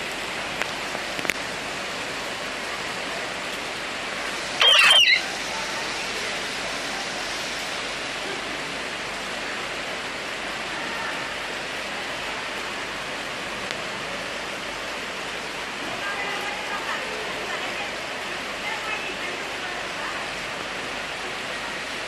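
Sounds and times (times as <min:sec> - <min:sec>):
heavy rain pouring: 0:00.0 - 0:22.0
high-pitched cry: 0:04.6 - 0:05.3.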